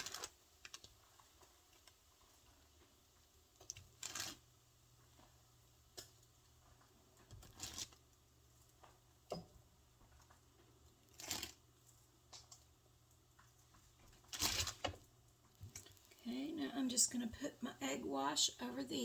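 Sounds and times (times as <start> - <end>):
plastic gloves crinkling: 0.0 - 2.9, 3.5 - 5.3, 5.9 - 8.9, 10.9 - 12.6, 13.3 - 16.3.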